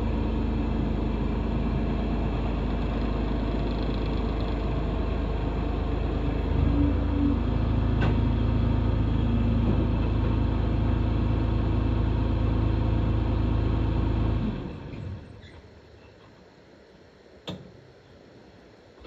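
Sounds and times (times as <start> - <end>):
diesel engine running: 0.0 - 15.5.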